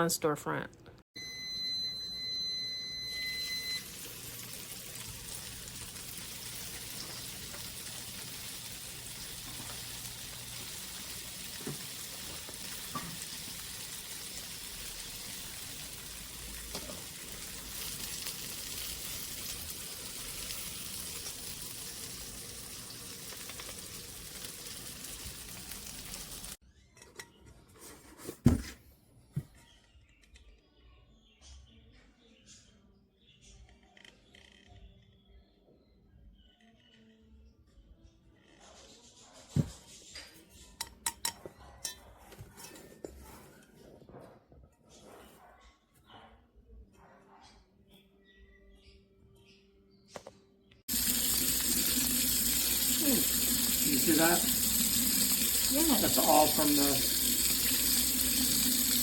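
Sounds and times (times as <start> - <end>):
food sizzling in a frying pan: 1.3 - 26.6, 50.9 - 59.0.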